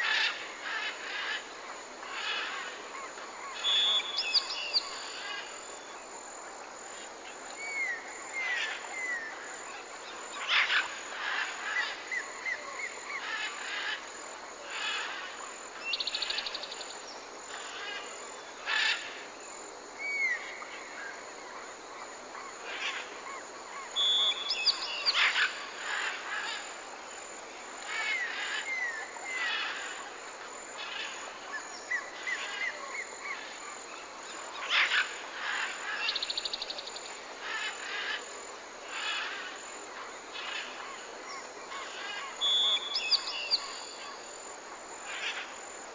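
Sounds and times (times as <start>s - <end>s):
forest birds calling: 0.0s - 6.0s, 7.5s - 9.5s, 22.3s - 26.8s, 30.8s - 44.3s.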